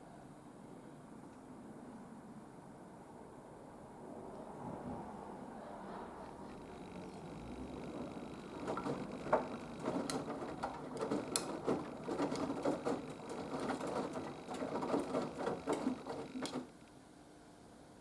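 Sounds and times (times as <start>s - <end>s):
washing machine low hum: 6.0s - 16.8s
washing machine drum turning laundry: 6.4s - 16.8s.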